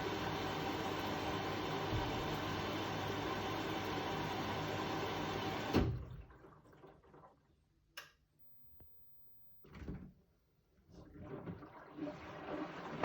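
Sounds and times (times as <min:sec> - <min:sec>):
washing machine running: 0:00.0 - 0:07.2.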